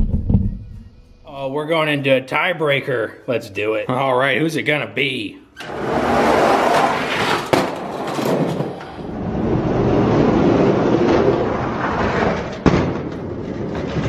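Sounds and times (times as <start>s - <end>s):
sharp knock: 0.0s - 1.2s
toy trucks rolling on track: 5.6s - 14.0s.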